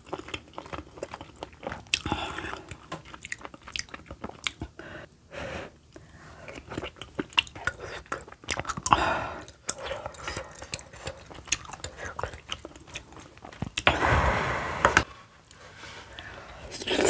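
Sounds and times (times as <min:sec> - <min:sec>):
chewing and wet mouth sounds: 0:00.0 - 0:05.2, 0:05.8 - 0:13.9.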